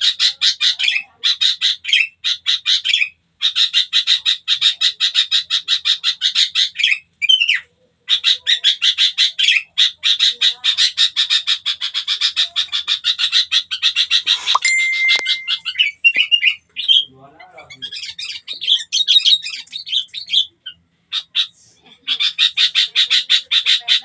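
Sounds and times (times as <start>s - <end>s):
bird chattering calls: 0.0s - 24.0s
odd bird call: 13.1s - 17.0s.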